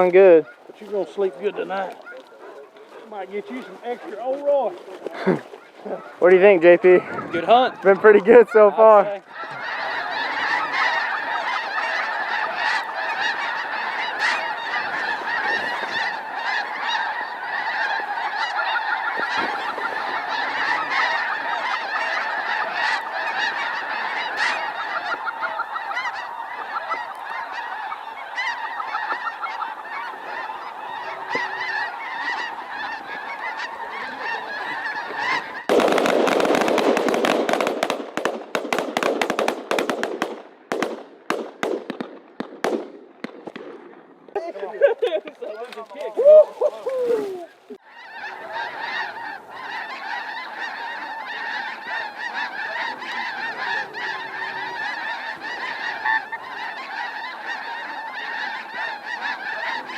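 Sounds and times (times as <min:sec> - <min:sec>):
geese honking: 0:00.0 - 0:59.9
loud rapid cracks: 0:35.7 - 0:44.0.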